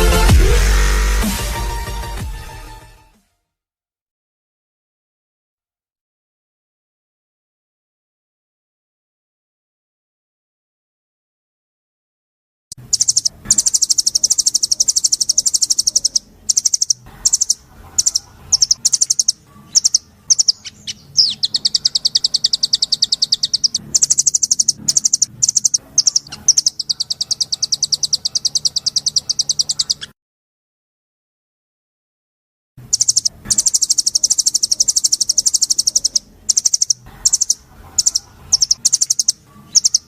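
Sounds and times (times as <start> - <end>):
songbird singing fast trills: 12.8 - 30.1, 32.9 - 40.0.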